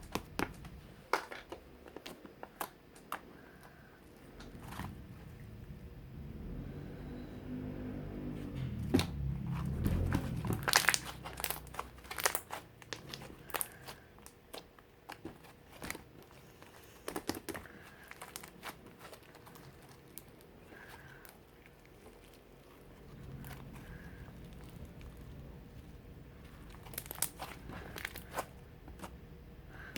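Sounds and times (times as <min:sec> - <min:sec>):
slime squished and stretched: 0:08.9 - 0:29.2.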